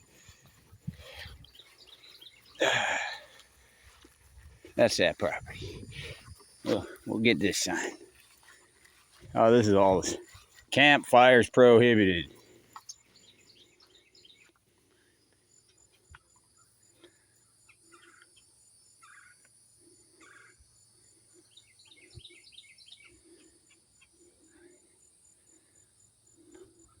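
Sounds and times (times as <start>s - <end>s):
faint bird calls: 0.0s - 3.8s, 12.3s - 27.0s.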